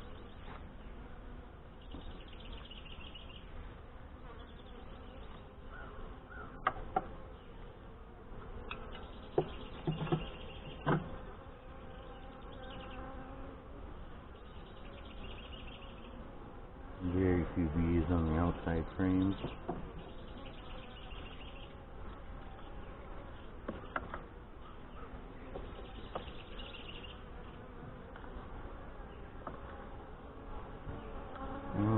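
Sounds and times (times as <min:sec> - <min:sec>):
honey bees buzzing: 0:00.0 - 0:31.9
wooden hive frames knocking: 0:06.6 - 0:07.2, 0:09.3 - 0:11.2, 0:19.3 - 0:20.1, 0:23.6 - 0:24.3.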